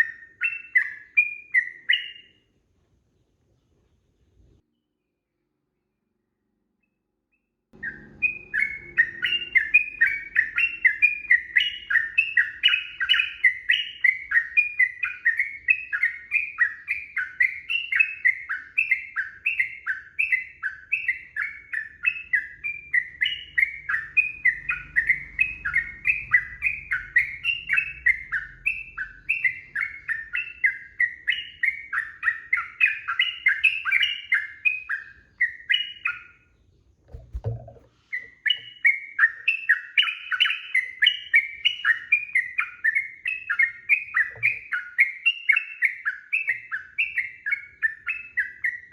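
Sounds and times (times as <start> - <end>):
bird singing quick notes: 7.8 - 18.2.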